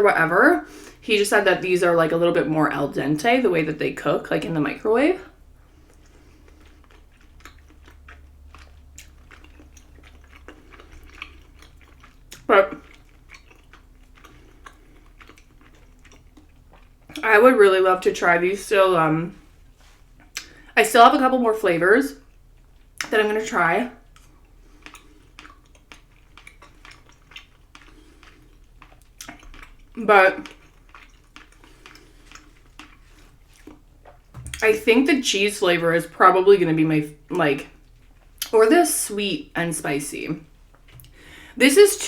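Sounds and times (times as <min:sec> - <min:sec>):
person chewing rice cakes: 0:05.2 - 0:17.3, 0:19.3 - 0:20.8, 0:22.2 - 0:23.1, 0:23.9 - 0:34.6, 0:37.6 - 0:38.5.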